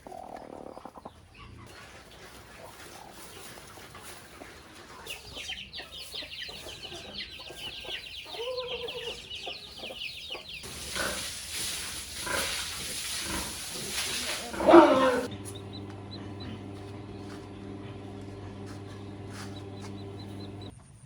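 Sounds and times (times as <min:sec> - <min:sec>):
chickens clucking: 0:00.0 - 0:20.7
steady hiss: 0:10.6 - 0:15.3.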